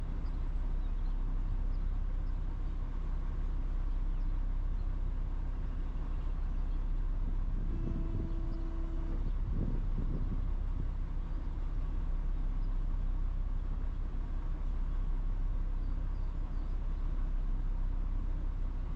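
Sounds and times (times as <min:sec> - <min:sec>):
vehicle engine rumble: 0:00.0 - 0:18.9
short steady tone: 0:07.6 - 0:09.6.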